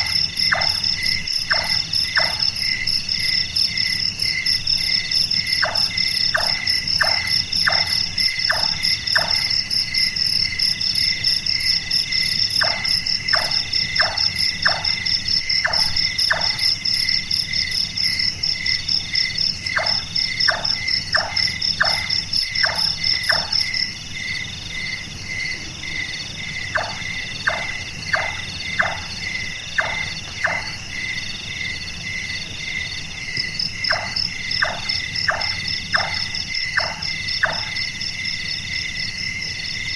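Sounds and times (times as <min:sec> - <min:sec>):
nightjar knocking calls: 0:00.0 - 0:02.5, 0:05.6 - 0:09.6, 0:12.6 - 0:15.0, 0:15.6 - 0:16.6, 0:19.8 - 0:23.6, 0:26.8 - 0:29.1, 0:29.8 - 0:30.8, 0:33.9 - 0:37.8
cricket trills: 0:00.0 - 0:39.9
insect chorus: 0:00.0 - 0:39.9.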